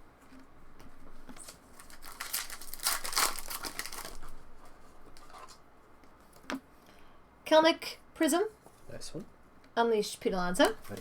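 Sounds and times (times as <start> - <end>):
plastic wrapper crinkling and tearing: 1.4 - 4.4.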